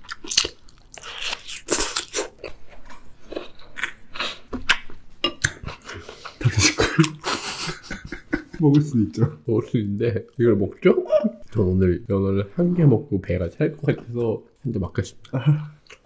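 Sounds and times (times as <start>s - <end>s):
chewing food: 0.0s - 6.4s.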